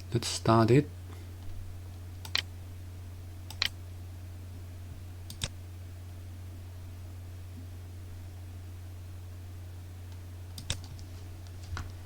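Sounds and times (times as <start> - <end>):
steady low hum: 0.0 - 12.0
computer mouse clicks: 2.2 - 2.5, 3.5 - 3.8, 5.3 - 5.5, 10.6 - 11.0.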